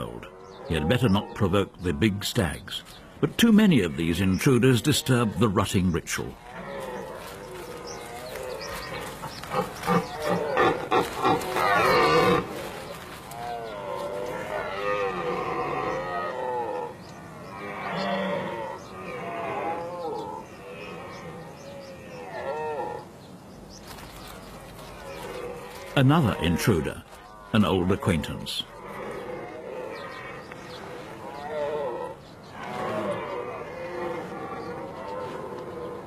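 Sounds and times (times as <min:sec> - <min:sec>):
deer stags roaring: 0:06.4 - 0:23.1, 0:28.3 - 0:36.0.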